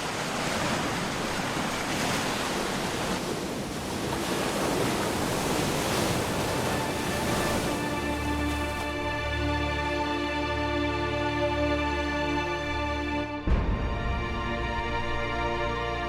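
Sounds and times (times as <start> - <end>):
ocean waves washing: 0.0 - 11.3.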